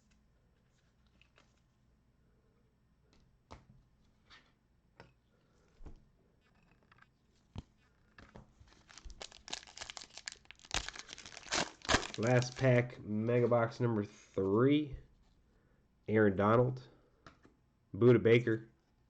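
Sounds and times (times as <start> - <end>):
foil wrapper crinkling and tearing: 8.7 - 12.8.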